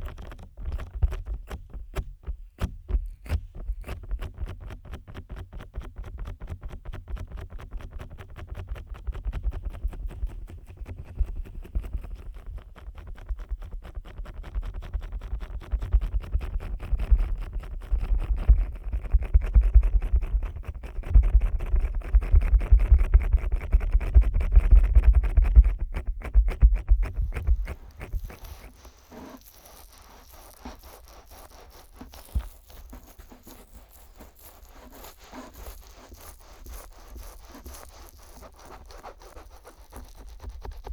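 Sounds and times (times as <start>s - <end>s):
fingers rubbing microphone: 0.0s - 40.9s.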